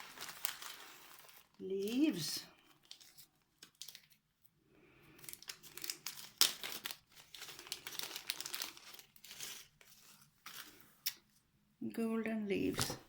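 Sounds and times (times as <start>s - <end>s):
plastic bag crinkling: 0.0s - 4.4s, 5.0s - 11.2s.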